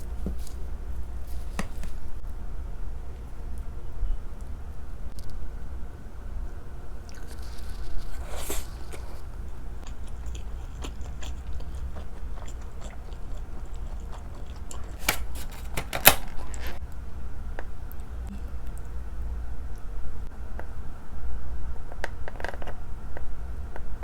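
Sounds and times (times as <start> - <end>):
chewing with wet mouth clicks: 7.0 - 16.8.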